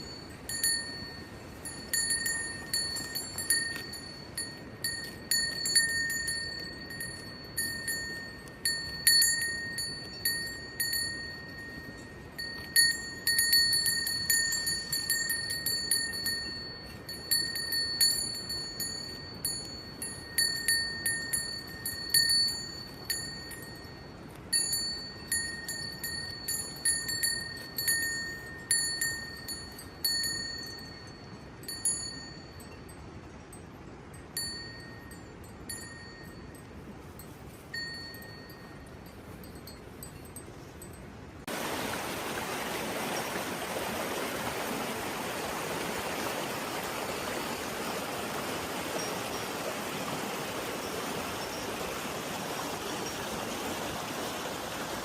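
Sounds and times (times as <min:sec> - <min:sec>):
metal bell ringing: 0:00.0 - 0:41.1.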